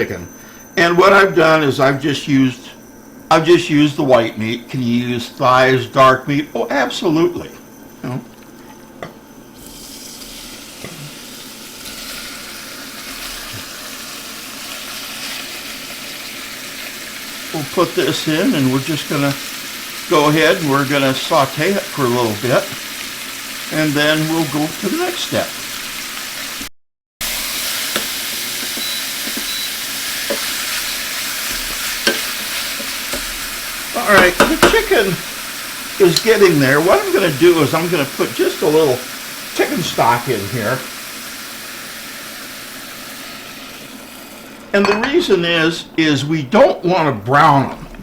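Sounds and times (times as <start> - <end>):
chicken sizzling in a pan: 9.6 - 44.9.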